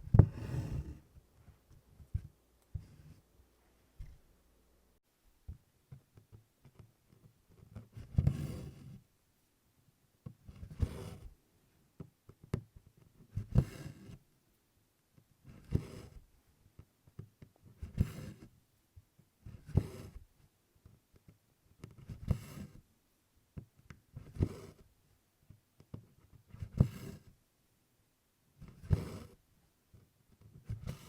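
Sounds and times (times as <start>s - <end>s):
thread drawn through with rasp: 0.0s - 1.0s, 15.4s - 16.2s, 19.4s - 20.2s, 21.8s - 22.8s, 24.2s - 24.8s, 26.5s - 27.3s, 28.6s - 29.4s, 30.5s - 31.0s.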